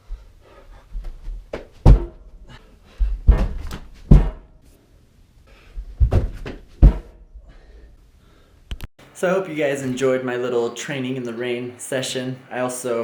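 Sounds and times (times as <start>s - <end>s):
loud thuds and knocks: 1.5s - 2.2s, 3.0s - 4.5s, 5.8s - 7.2s.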